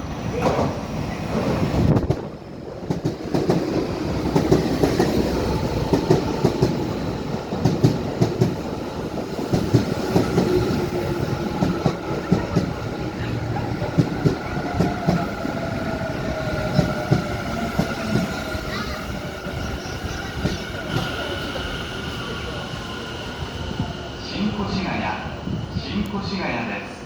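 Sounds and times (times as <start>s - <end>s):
train rumble: 0.0s - 27.0s
train wheels clicking over joints: 0.4s - 21.8s.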